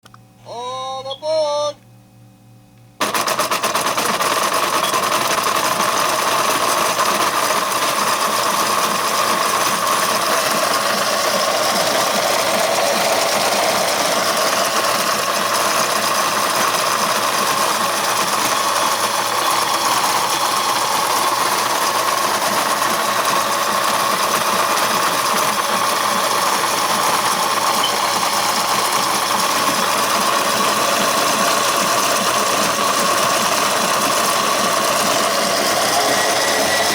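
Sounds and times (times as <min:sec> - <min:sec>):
rapid fine clicking: 0:03.0 - 0:36.9
toy train motor whirring: 0:03.0 - 0:36.9.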